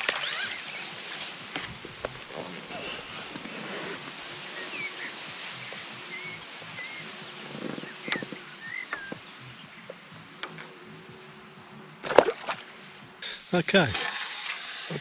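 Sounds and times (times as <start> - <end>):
faint outdoor hiss: 0.0 - 15.0
small birds chirping: 0.2 - 12.0.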